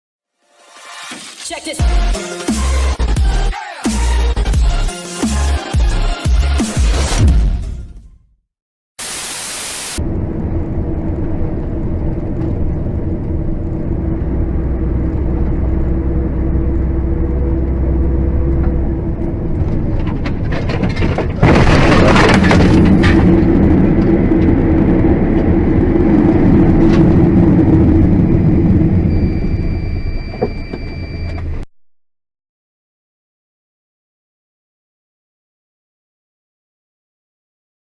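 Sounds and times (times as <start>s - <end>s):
car engine and road noise: 9.0s - 31.7s
loud rough noise: 12.7s - 29.8s
loud crash: 20.0s - 23.9s.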